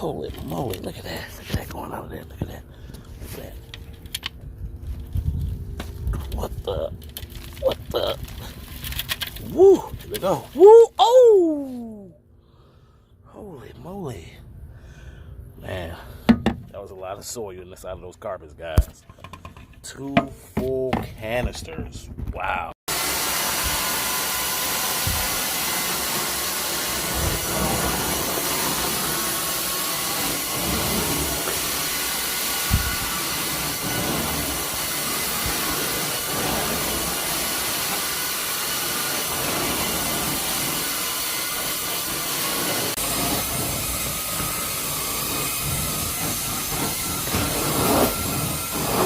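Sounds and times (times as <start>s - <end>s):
carpet cleaner suction hiss: 22.9s - 49.0s.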